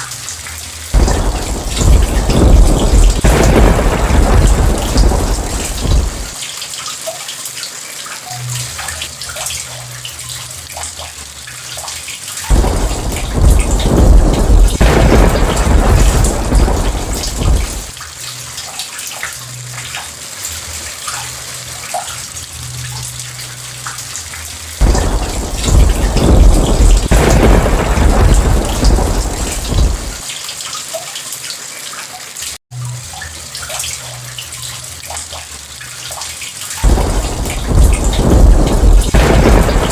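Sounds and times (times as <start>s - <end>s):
heavy rain: 0.0s - 39.9s
rolling thunder: 1.0s - 6.4s, 12.5s - 18.0s, 24.8s - 30.2s, 36.8s - 39.9s.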